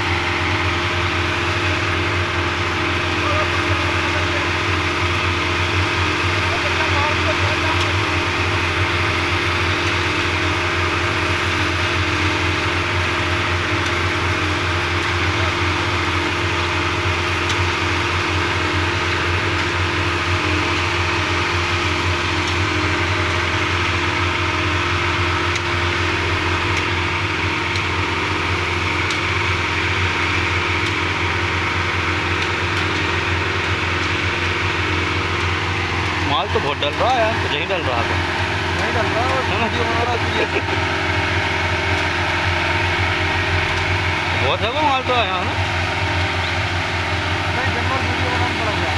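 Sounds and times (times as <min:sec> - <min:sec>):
concrete mixer engine humming: 0:00.0 - 0:48.9.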